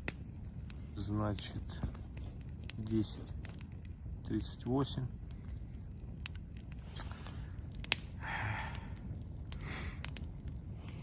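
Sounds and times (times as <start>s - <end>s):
campfire crackling and popping: 0.0s - 11.0s
low steady rumble: 0.0s - 11.0s
soft hissing: 6.8s - 9.0s.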